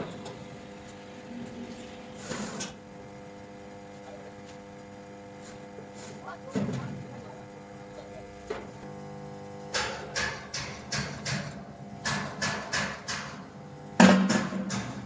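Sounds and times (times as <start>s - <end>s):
hammer striking metal: 9.7s - 13.4s, 14.0s - 15.0s.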